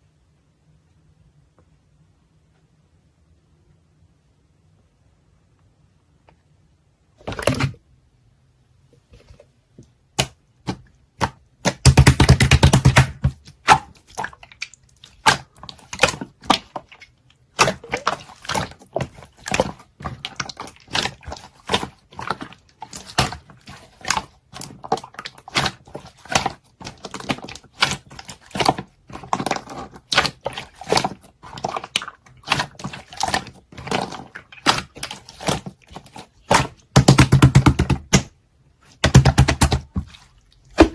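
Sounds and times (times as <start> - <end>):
slime squelching by hand: 7.2 - 7.8, 10.1 - 40.9.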